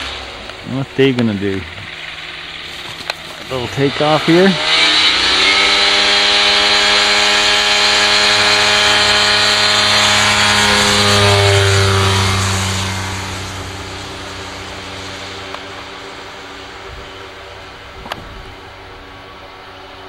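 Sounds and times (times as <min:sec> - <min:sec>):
propeller airplane engine drone: 0:00.0 - 0:20.0.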